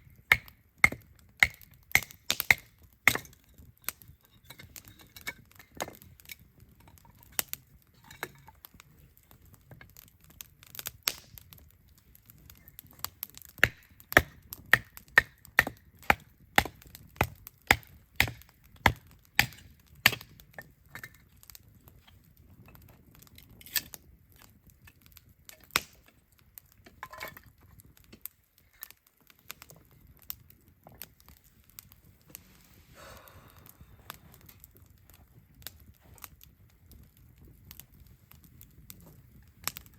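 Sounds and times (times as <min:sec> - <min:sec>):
firewood being chopped: 0:00.0 - 0:08.8, 0:09.4 - 0:11.6, 0:12.2 - 0:32.3, 0:37.7 - 0:39.9
wood cracks and knocks: 0:00.3 - 0:03.5, 0:13.0 - 0:21.3.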